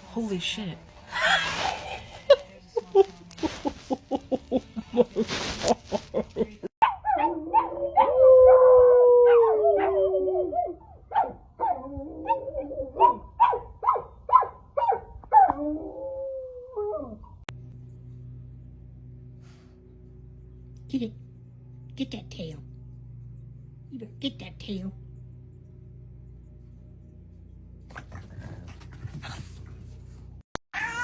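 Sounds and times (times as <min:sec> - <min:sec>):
dog barking and yipping: 0:06.8 - 0:08.2, 0:11.1 - 0:12.4, 0:13.0 - 0:15.6
dog howling: 0:07.0 - 0:10.8.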